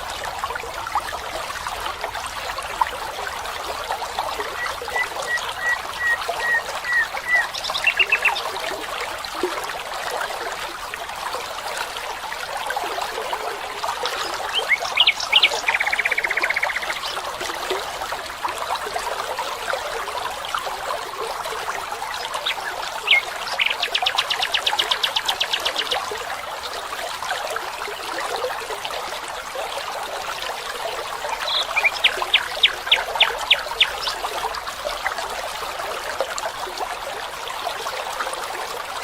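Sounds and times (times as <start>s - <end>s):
stream trickling: 0.0s - 39.0s.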